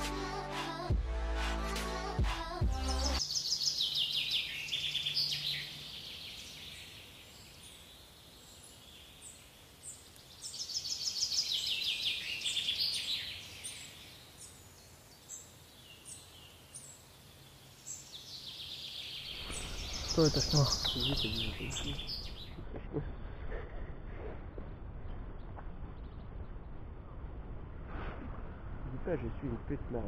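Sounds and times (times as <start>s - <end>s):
intro music: 0.0s - 3.2s
songbird trilling: 17.8s - 22.6s
high bird chirps: 17.9s - 22.6s.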